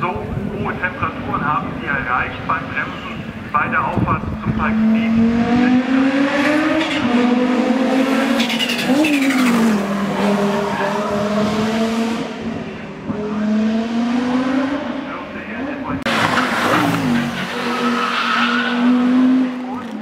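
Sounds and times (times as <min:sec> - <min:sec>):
racing car engine revving: 0:04.2 - 0:20.0.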